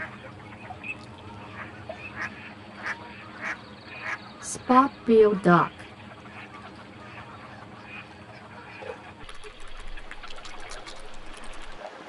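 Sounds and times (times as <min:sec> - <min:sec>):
ducks splashing in water: 0:00.0 - 0:04.4, 0:05.8 - 0:12.0
faint duck calls: 0:00.0 - 0:09.2.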